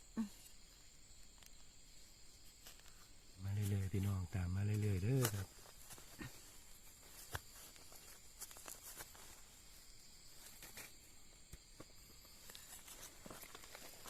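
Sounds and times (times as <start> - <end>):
high insect drone: 0.0 - 14.0
footsteps on dry leaves and twigs: 2.4 - 14.0
twig snapping: 4.7 - 6.3.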